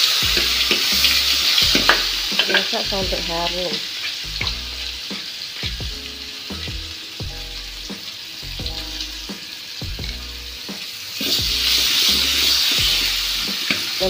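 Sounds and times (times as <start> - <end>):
background music with beat: 0.0 - 14.0
spice paste sizzling in hot oil: 0.0 - 14.0.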